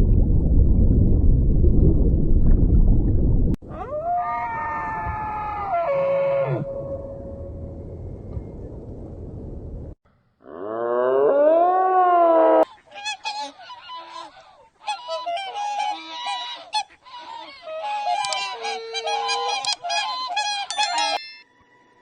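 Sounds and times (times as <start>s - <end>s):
geese honking: 12.7s - 21.2s.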